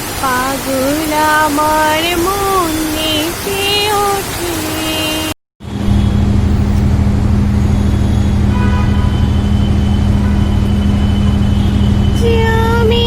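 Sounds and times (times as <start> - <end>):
vehicle engine running: 5.6 - 13.0.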